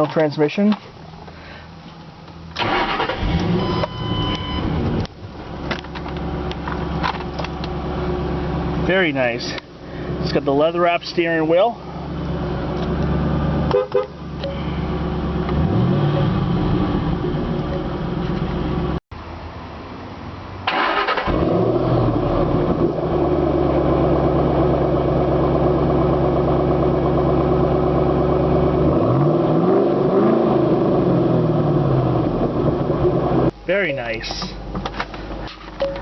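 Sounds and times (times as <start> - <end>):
car engine idling: 4.0 - 19.0
car horn blast: 13.7 - 14.2.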